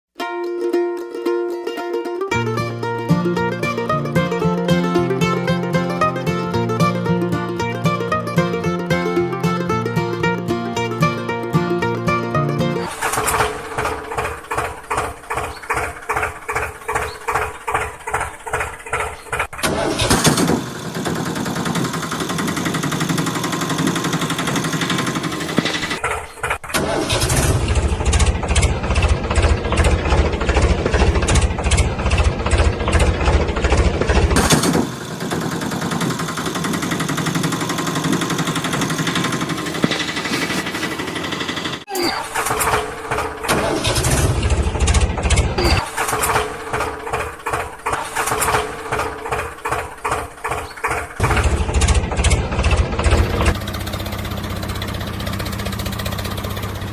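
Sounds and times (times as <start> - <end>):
engine running: 2.1 - 56.9
slow engine pulses: 2.3 - 56.9.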